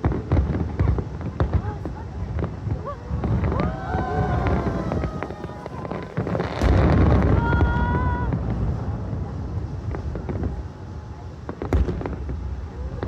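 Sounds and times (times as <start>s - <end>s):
fireworks booming: 0.0s - 13.0s
fireworks crackling pops: 0.0s - 13.0s.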